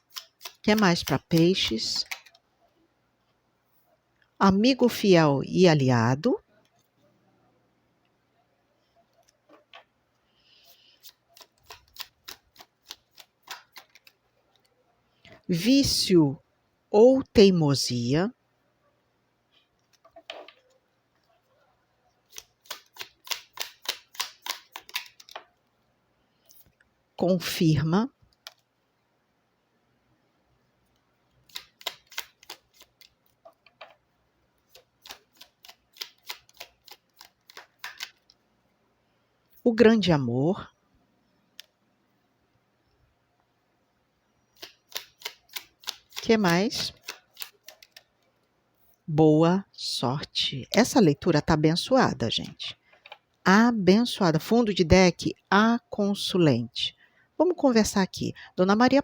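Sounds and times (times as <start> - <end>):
cards shuffling and snapping: 0.0 - 2.4, 11.0 - 14.2, 22.3 - 25.5, 31.4 - 34.0, 34.7 - 38.3, 44.6 - 48.0
cards flicked clicking: 22.3 - 25.4, 34.7 - 38.3
cards sliding: 22.3 - 25.4, 34.7 - 38.3.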